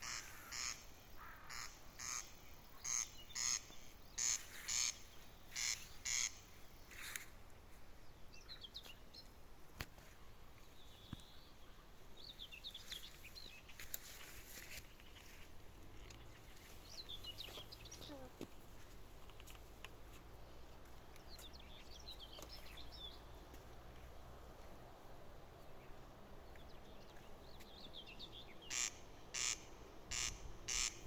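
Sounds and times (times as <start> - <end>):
quack-like animal calls: 0.0 - 6.4, 28.7 - 31.0.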